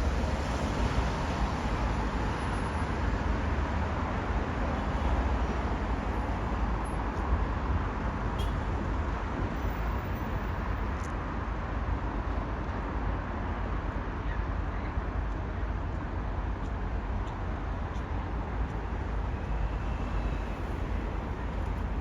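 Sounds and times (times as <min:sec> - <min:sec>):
vehicle rumbling: 0:00.0 - 0:22.0.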